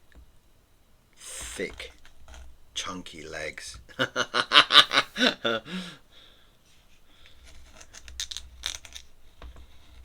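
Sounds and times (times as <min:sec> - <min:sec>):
man talking: 0:01.2 - 0:02.0, 0:02.8 - 0:03.8.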